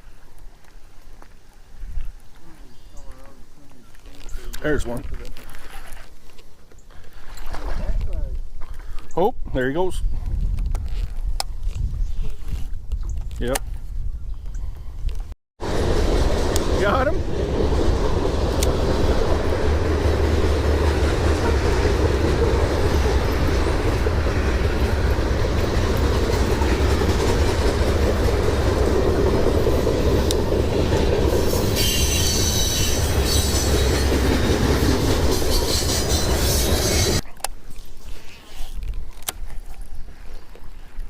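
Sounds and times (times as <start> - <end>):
wind buffeting microphone: 7.7 - 37.2.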